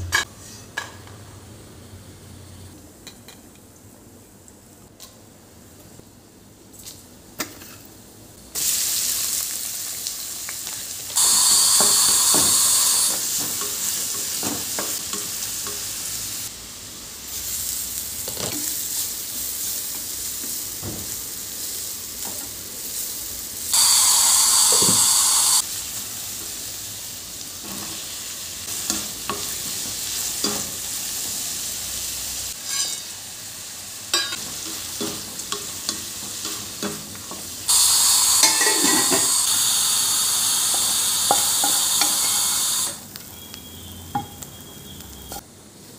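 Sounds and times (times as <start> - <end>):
food sizzling in hot oil: 8.5 - 45.5
utensil scraping a pan: 32.6 - 33.1.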